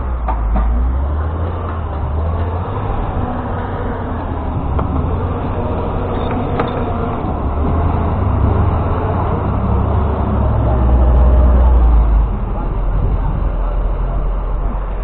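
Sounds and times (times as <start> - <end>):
large engine rumbling: 0.0 - 15.0.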